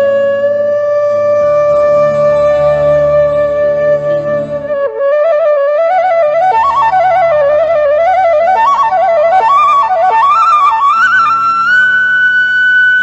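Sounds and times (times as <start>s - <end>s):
bamboo flute melody: 0.0s - 13.0s
low sustained drone: 0.6s - 4.8s.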